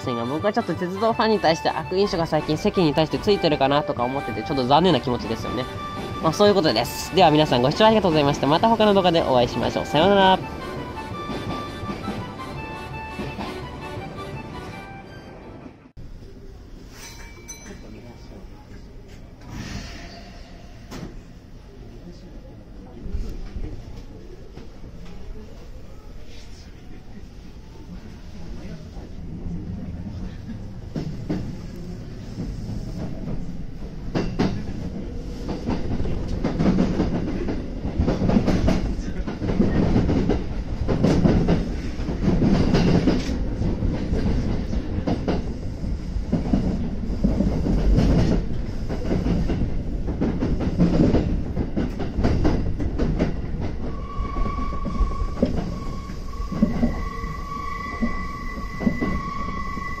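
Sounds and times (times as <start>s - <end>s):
train rumbling on rails: 0.0s - 60.0s
high-pitched squeal: 53.8s - 60.0s.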